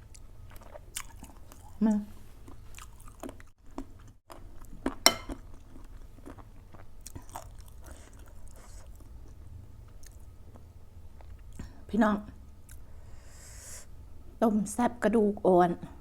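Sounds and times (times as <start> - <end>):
person chewing and crunching: 0.1 - 1.8, 2.5 - 5.4, 6.0 - 9.0.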